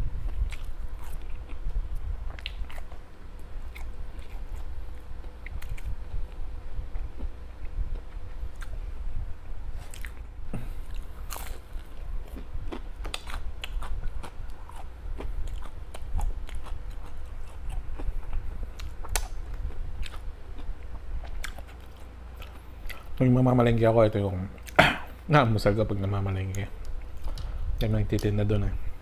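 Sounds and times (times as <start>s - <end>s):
steady low hum: 0.0s - 29.0s
wet chewing: 0.2s - 6.4s, 9.8s - 23.2s.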